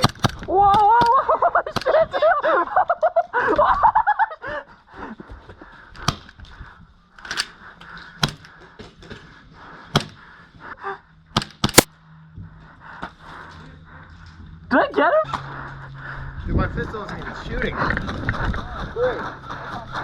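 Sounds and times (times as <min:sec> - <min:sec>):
airsoft pistol shots: 0:10.0 - 0:10.2, 0:11.4 - 0:11.9.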